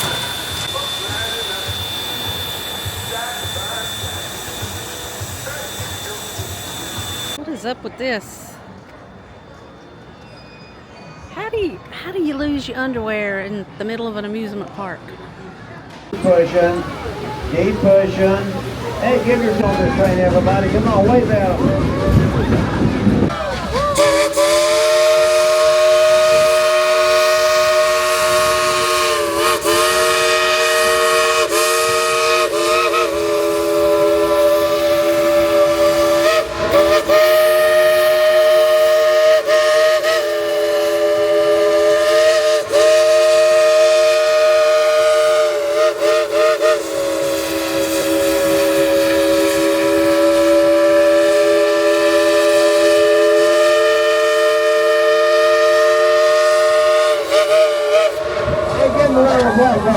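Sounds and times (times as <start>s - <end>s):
steam locomotive chime whistle: 0.0s - 7.4s, 23.5s - 59.8s.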